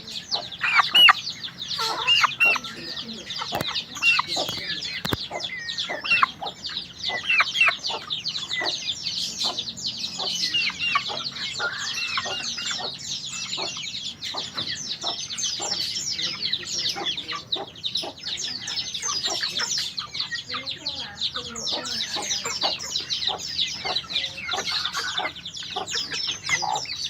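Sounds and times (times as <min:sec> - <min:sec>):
bird twittering song: 0:00.0 - 0:27.0.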